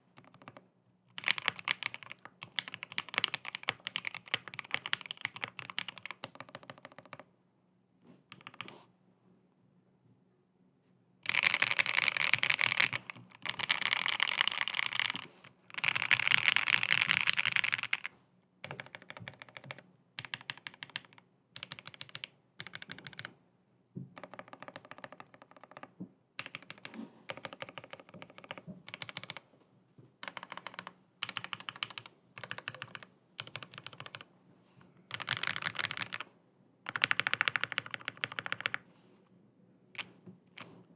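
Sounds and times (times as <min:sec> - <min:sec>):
mechanical keyboard typing: 0:00.2 - 0:00.6, 0:01.2 - 0:07.3, 0:08.3 - 0:08.7, 0:11.2 - 0:23.3, 0:24.2 - 0:29.4, 0:30.2 - 0:34.3, 0:35.1 - 0:36.3, 0:36.9 - 0:38.8.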